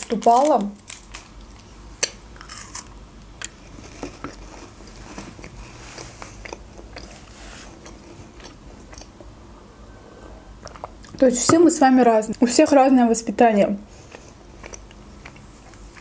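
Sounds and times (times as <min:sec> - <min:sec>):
person chewing candy: 0:00.9 - 0:09.3, 0:10.5 - 0:11.2, 0:14.0 - 0:16.0.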